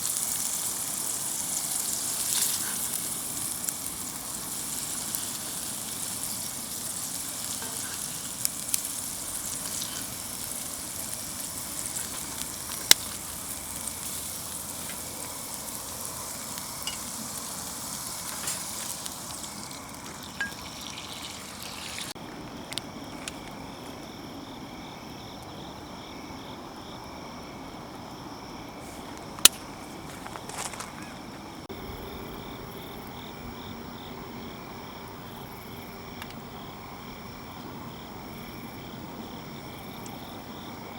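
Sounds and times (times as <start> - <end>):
oil sizzling in a skillet: 0.0 - 22.2.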